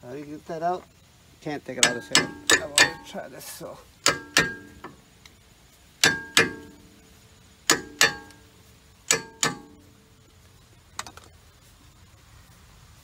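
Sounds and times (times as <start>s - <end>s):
hammer clanging on steel: 1.8s - 3.3s, 4.0s - 5.0s, 6.0s - 7.0s, 7.7s - 8.5s, 9.1s - 9.9s.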